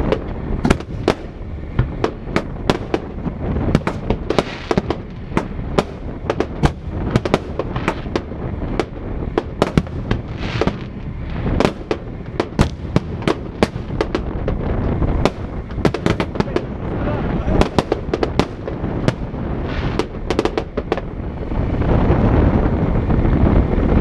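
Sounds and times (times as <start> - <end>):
fireworks shells bursting: 0.0 - 16.7
crackling hiss: 0.0 - 23.5
low rumble: 0.0 - 24.0.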